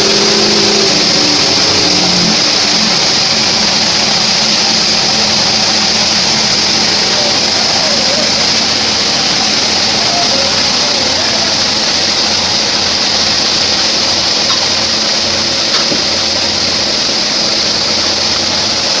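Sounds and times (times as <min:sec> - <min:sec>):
bandsaw cutting wood: 0:00.0 - 0:19.0.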